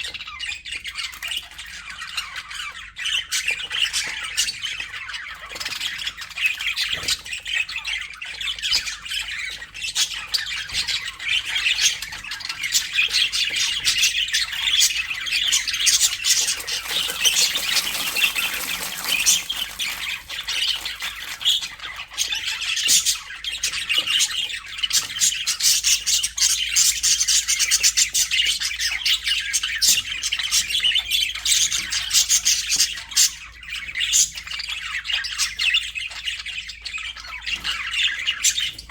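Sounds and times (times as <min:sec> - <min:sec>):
budgerigars chattering: 0:12.6 - 0:24.3.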